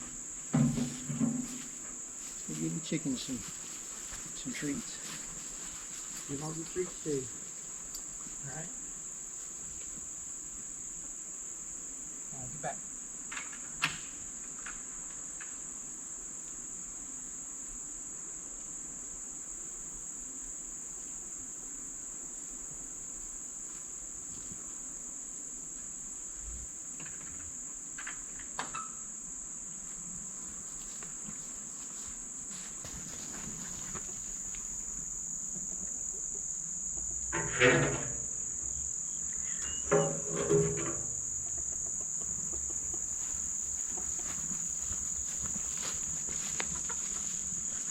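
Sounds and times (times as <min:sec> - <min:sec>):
insects shrilling: 0:00.0 - 0:16.0, 0:19.8 - 0:47.9.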